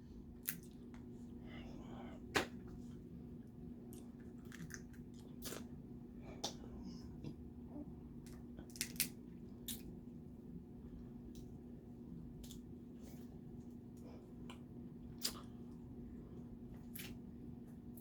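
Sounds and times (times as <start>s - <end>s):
wet squishing and chewing: 0.4s - 1.1s, 3.8s - 6.6s, 8.2s - 10.0s, 12.3s - 15.8s.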